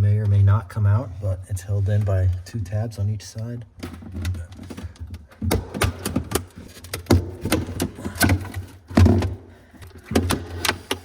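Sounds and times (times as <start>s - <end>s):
plastic panel clicking and rattling: 3.8s - 11.0s.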